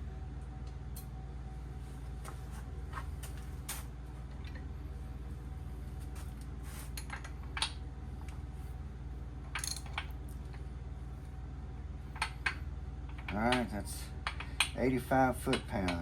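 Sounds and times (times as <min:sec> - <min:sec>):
steady low hum: 0:00.0 - 0:16.0
metal tool clicks and clinks: 0:09.6 - 0:10.0.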